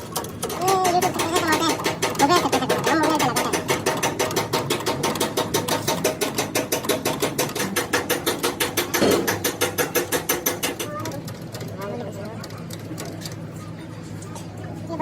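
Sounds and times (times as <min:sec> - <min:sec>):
rapid knocking: 0:00.0 - 0:11.7.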